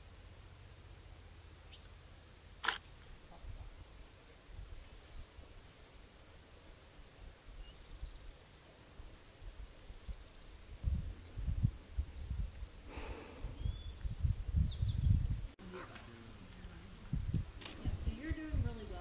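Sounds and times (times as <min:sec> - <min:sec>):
songbird trilling: 0:09.6 - 0:10.9, 0:13.6 - 0:15.3
low rumbling: 0:10.7 - 0:19.0.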